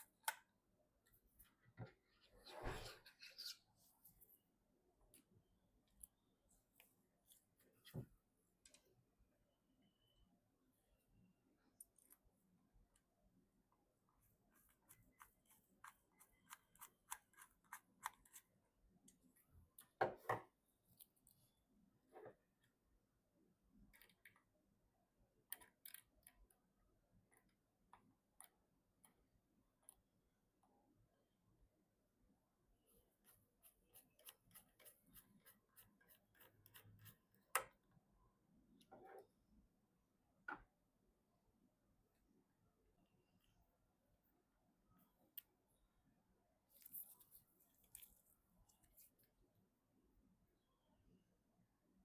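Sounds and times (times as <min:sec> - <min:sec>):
small clicks of computer parts: 0:25.5 - 0:26.6.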